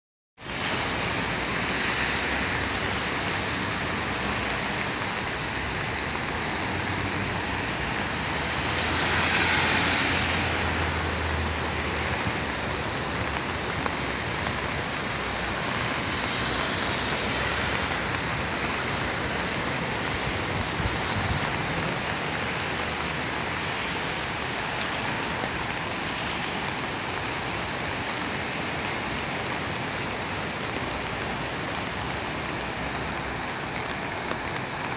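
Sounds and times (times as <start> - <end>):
rain: 0.4 - 34.9.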